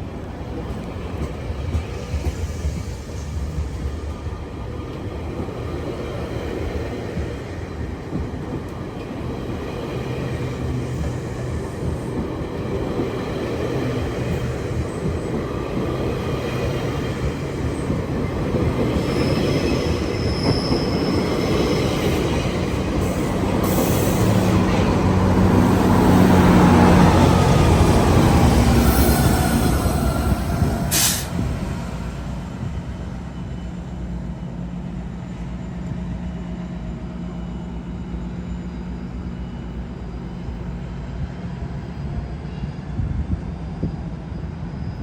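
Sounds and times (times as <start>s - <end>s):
train running on rails: 0.0s - 45.0s
high wheel squeal: 17.8s - 35.1s.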